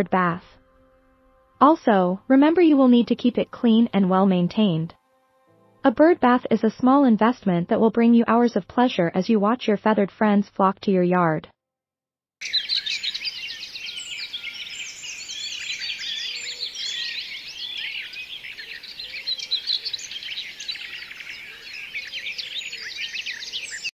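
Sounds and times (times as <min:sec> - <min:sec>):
small birds chirping chorus: 0:12.4 - 0:23.9.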